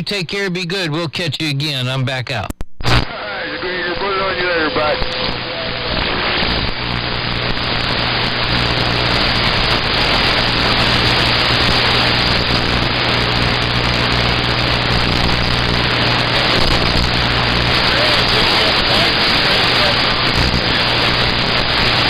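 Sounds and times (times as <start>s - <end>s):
radio static hissing: 0.0s - 22.0s
low electrical hum: 6.6s - 22.0s.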